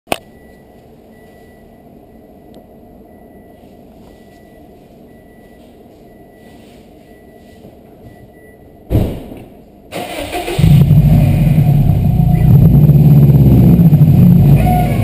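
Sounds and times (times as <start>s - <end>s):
car warning chime beeping: 0.1s - 8.9s
low background rumble: 10.6s - 15.0s.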